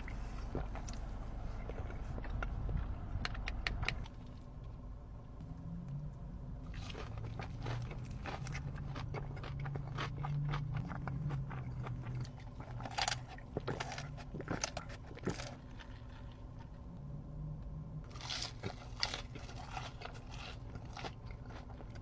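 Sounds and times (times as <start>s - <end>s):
crunching fried chicken: 6.6s - 16.8s, 18.1s - 22.0s.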